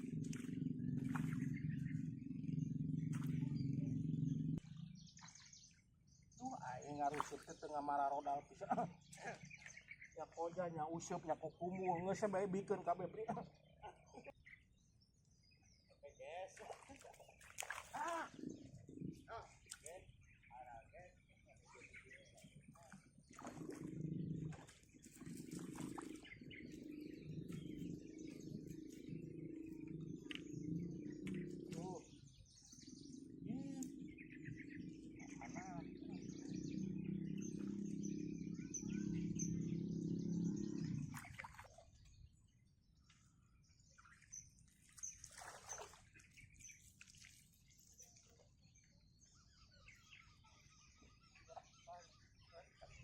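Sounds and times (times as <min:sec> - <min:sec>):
low pitched animal calls: 0:00.0 - 0:05.6, 0:17.8 - 0:41.8
low steady rumble: 0:00.0 - 0:06.3, 0:26.6 - 0:41.2
faint bird chirps: 0:00.0 - 0:53.0.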